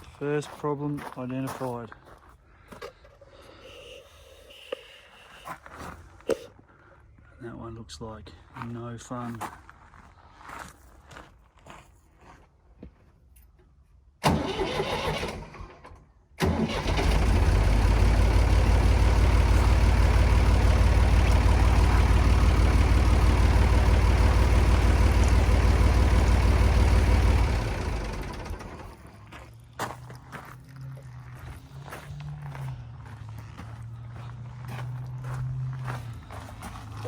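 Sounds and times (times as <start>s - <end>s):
backhoe engine starting and idling: 14.2s - 29.4s.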